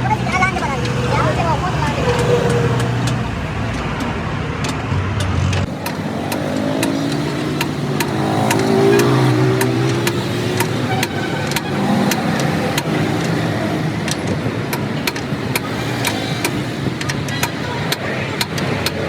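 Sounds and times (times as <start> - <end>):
traffic noise: 0.0 - 19.0
vehicle engine: 0.0 - 19.0
sharp clicks: 2.0 - 19.0.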